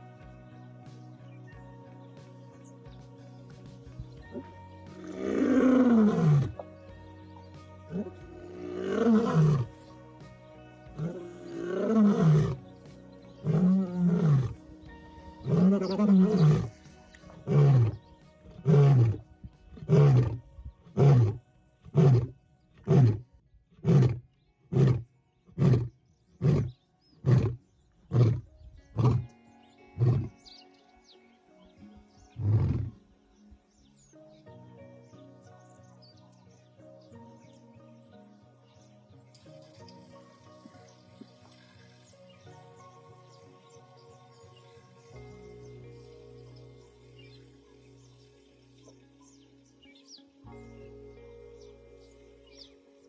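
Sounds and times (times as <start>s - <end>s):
soft background music: 0.0s - 53.0s
lion roaring and grunting: 4.3s - 6.6s, 7.9s - 9.7s, 11.0s - 12.6s, 13.4s - 14.6s, 15.4s - 29.3s, 30.0s - 30.3s, 32.4s - 33.0s.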